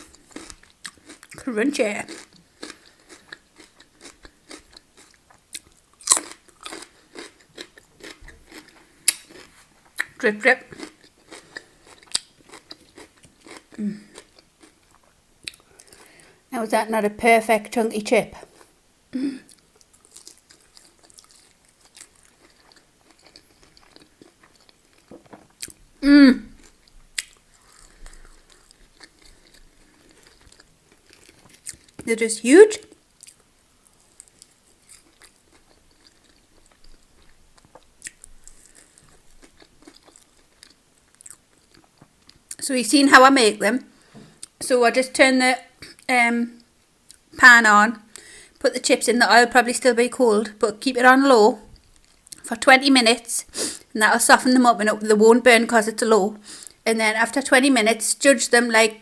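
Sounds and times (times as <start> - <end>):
chewing a chip: 0.0 - 16.1, 19.5 - 25.8, 26.5 - 32.1, 32.8 - 42.6
celery crunching: 2.0 - 10.1
person humming: 26.0 - 26.5.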